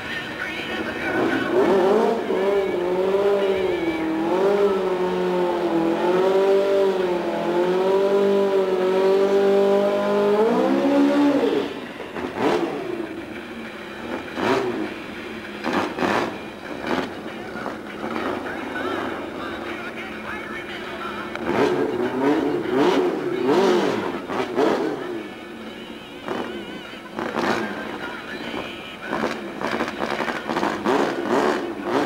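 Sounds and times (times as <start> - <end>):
car engine revving high: 0.8 - 19.8, 21.1 - 25.6, 26.2 - 32.0.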